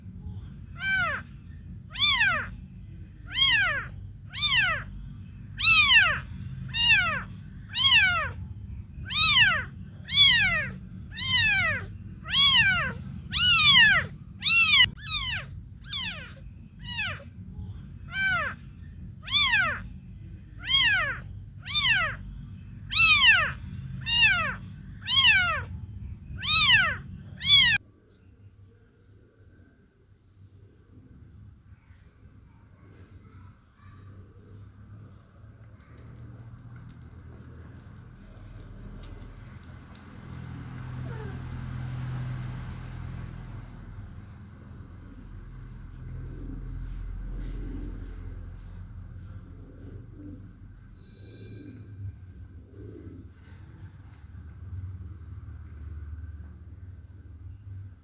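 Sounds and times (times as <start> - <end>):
steady low rumble: 0.0 - 27.9
kitten meowing: 0.7 - 1.3, 1.9 - 2.6, 3.2 - 5.0, 5.6 - 17.4, 18.1 - 18.6, 19.2 - 20.0, 20.6 - 27.8, 41.0 - 41.4.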